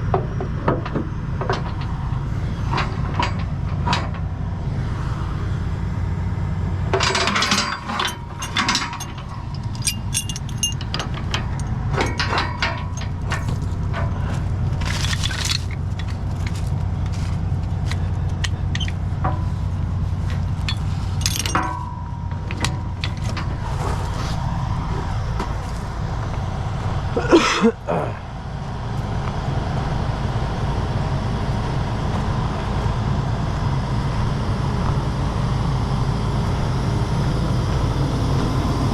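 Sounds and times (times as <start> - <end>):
truck diesel engine idling: 0.0 - 31.9
metal chain and hooks clanking: 2.7 - 4.2, 6.9 - 26.2.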